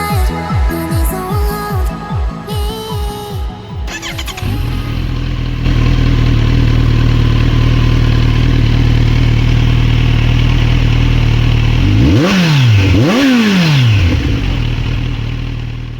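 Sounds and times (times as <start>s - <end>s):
motorcycle engine idling: 3.9s - 15.9s
motorcycle throttle blips: 3.9s - 15.9s.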